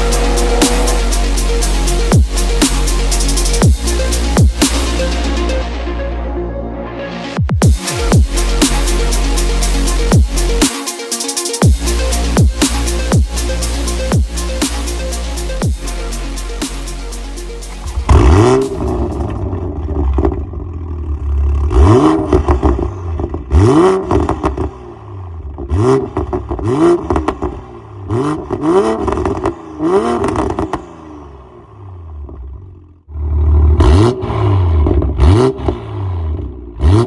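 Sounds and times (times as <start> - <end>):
car engine revving in blips: 0.0 - 5.1, 17.7 - 37.0
exhaust crackles: 0.0 - 5.5, 11.9 - 30.9.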